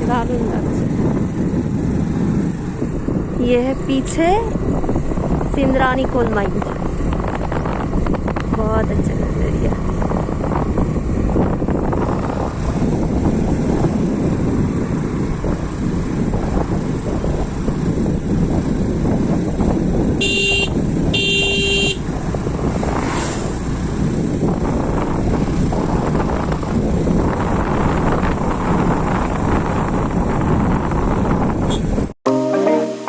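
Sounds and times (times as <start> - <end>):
scooter road rumble: 0.0 - 32.8
wind: 0.0 - 33.0
vehicle horn honking: 20.2 - 22.0.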